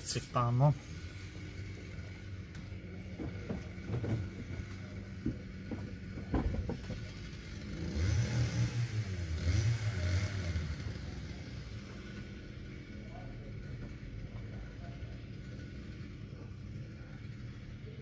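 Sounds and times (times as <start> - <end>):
road vehicle passing by: 0.0 - 18.0
sharp clicks and knocks: 2.5 - 7.4.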